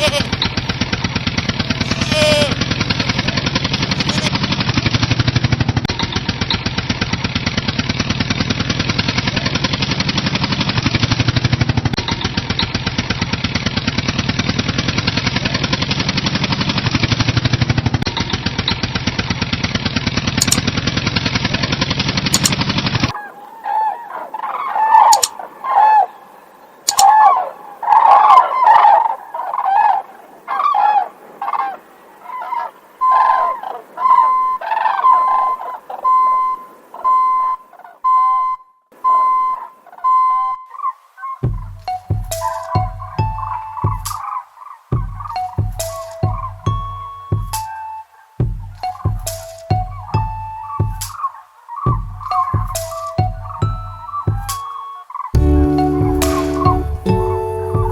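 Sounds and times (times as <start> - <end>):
fowl honking calls: 0.0 - 4.4, 23.1 - 38.4, 39.0 - 57.9
tractor engine chugging: 0.0 - 23.2, 41.4 - 54.7, 55.4 - 57.9.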